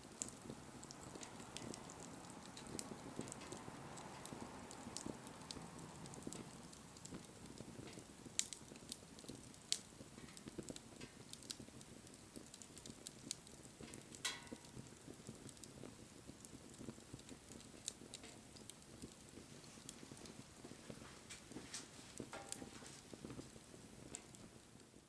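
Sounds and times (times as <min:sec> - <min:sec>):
bonfire wood popping: 0:00.0 - 0:25.0
flames rustling: 0:00.0 - 0:25.0.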